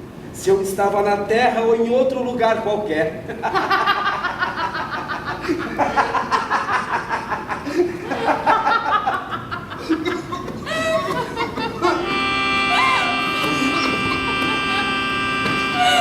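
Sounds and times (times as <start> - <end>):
man laughing: 3.3 - 12.3, 13.4 - 15.1.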